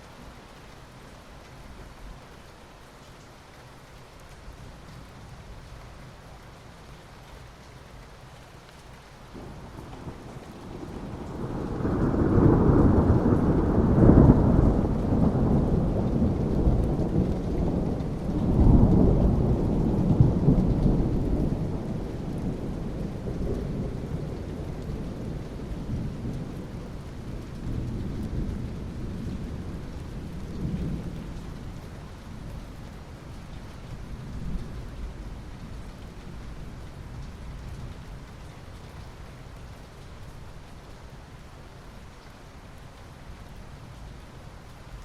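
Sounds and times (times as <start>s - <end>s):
steady rain: 0.0s - 45.0s
rolling thunder: 9.4s - 31.8s.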